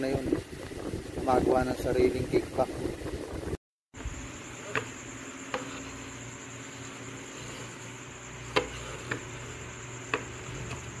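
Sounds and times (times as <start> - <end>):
faint hum and hiss: 4.0 - 11.0.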